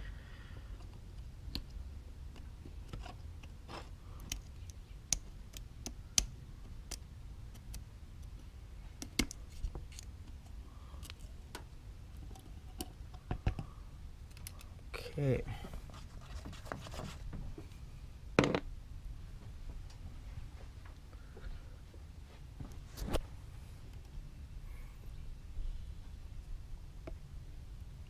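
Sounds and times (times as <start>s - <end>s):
faint low rumble: 17.2s - 28.0s.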